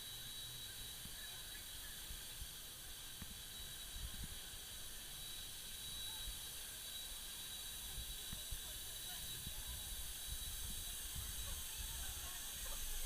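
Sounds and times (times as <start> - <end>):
faint hiss: 0.0 - 13.0
thin high whine: 0.0 - 13.0
wind rumbling on microphone: 7.9 - 13.0.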